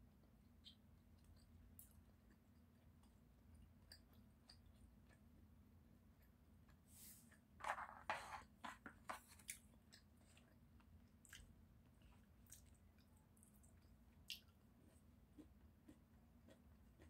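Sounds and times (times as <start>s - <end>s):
crunchy chewing of food: 9.2s - 17.0s.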